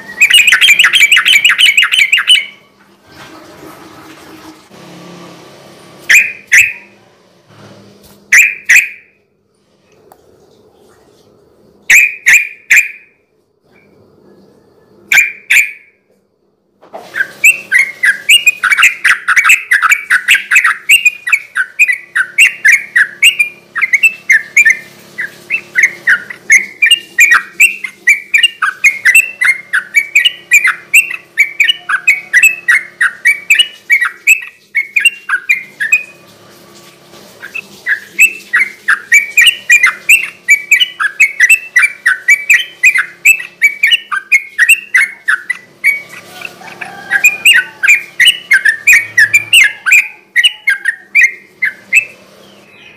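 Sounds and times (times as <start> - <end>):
bird singing rapid chirps: 0.0 - 2.7, 6.1 - 7.0, 8.3 - 9.1, 11.9 - 13.1, 14.4 - 15.9, 17.2 - 36.2, 37.4 - 52.9.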